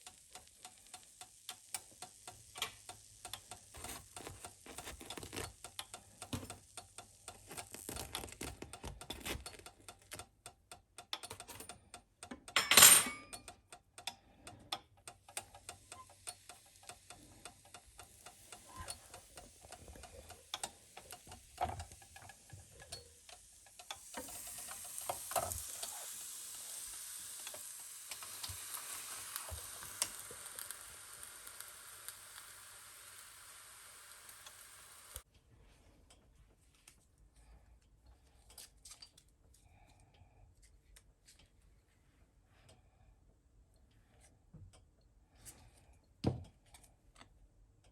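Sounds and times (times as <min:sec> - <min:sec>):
food sizzling: 0:00.0 - 0:09.6, 0:15.6 - 0:35.3
utensils clicking and tapping: 0:00.0 - 0:26.0.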